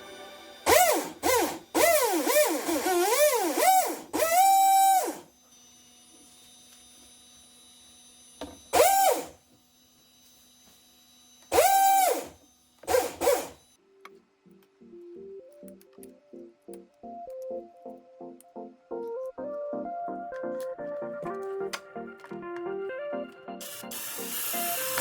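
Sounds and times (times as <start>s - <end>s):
electric motor high whine: 0.1s - 13.7s, 23.6s - 25.0s.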